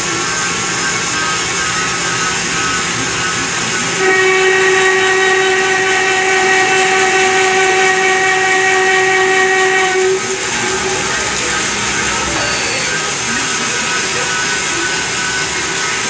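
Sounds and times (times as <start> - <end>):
lathe cutting hiss: 0.0 - 16.0
high-pitched ringing tone: 9.3 - 15.8.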